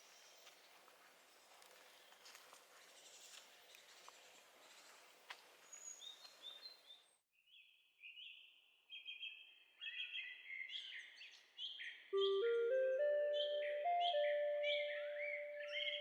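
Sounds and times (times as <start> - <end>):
songbirds singing and chirping: 5.6 - 16.0
music with sustained notes: 12.2 - 16.0.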